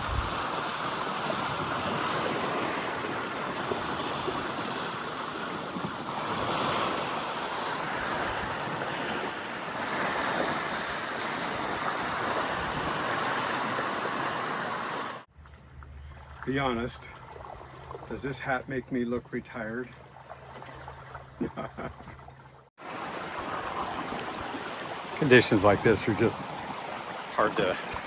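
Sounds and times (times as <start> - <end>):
wind on microphone: 0.0 - 7.0, 9.8 - 15.1
water rushing past boat hull: 0.0 - 18.2, 19.8 - 28.0.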